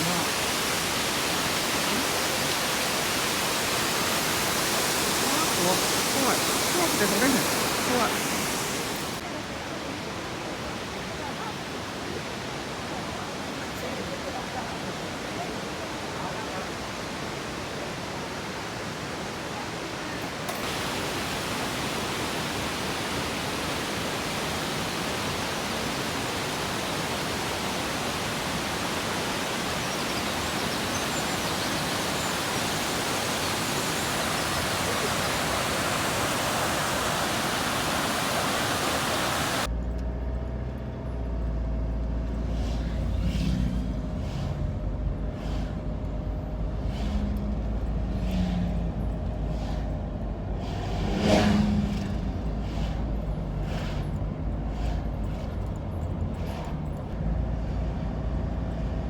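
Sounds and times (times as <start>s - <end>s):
waterfall pouring: 0.0s - 9.2s, 20.4s - 39.7s.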